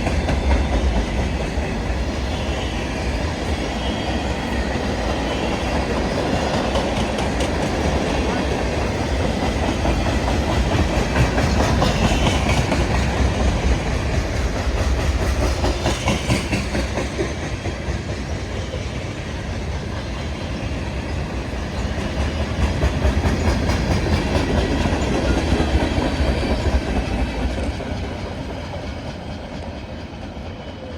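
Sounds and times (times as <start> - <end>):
freight train wheels clicking: 0.0 - 30.9.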